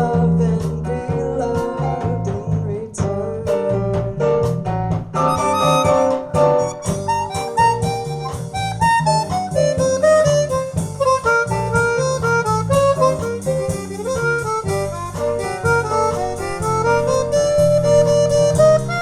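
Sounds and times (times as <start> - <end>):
plucked guitar: 4.4 - 19.0
harmonica melody: 5.2 - 19.0
steady low pulse: 9.5 - 19.0.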